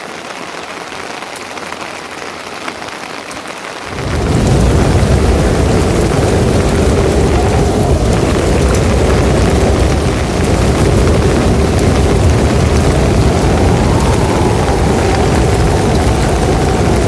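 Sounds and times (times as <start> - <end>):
loud low rumbling noise: 3.9 - 17.0.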